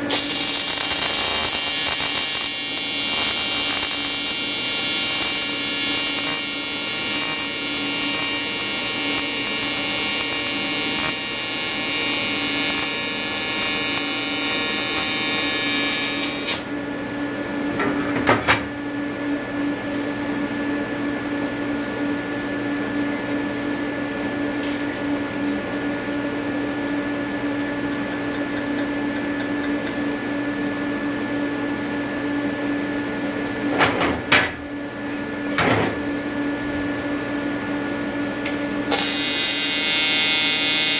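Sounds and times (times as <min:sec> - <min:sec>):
buzzing welding arc: 0:00.0 - 0:16.7, 0:38.8 - 0:40.9
steady hum: 0:00.0 - 0:17.6.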